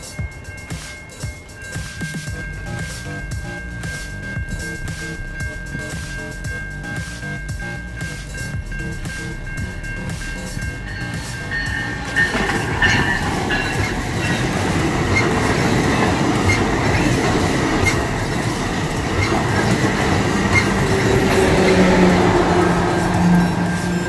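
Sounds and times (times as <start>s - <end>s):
locomotive low hum: 0.0s - 24.0s
train wheel and rail rumble: 0.0s - 24.0s.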